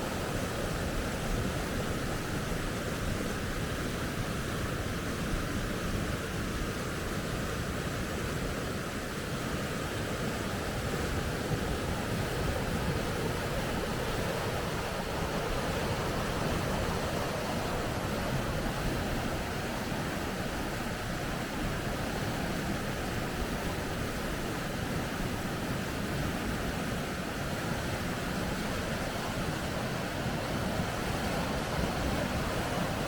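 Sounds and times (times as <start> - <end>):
water rushing over rocks: 8.0 - 33.0.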